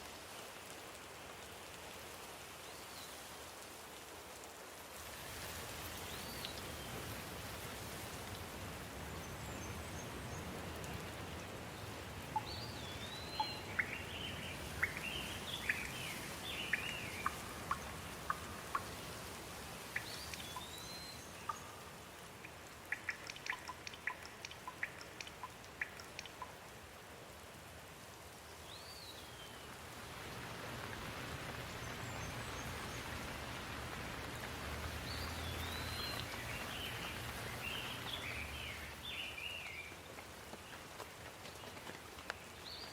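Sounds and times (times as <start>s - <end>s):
steady rain hissing: 0.0s - 42.9s
birds chirping: 11.3s - 19.1s, 19.9s - 26.5s, 34.8s - 39.9s
sharp ticks of drops: 22.4s - 26.6s.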